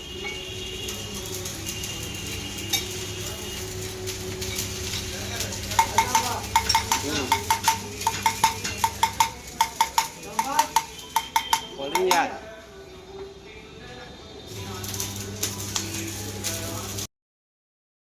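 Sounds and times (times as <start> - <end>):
metal-on-metal tapping: 5.7 - 12.3.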